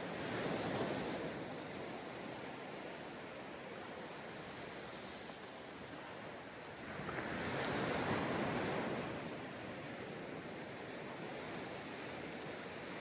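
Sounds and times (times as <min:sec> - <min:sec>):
waves crashing on sandy beach: 0:00.0 - 0:13.0.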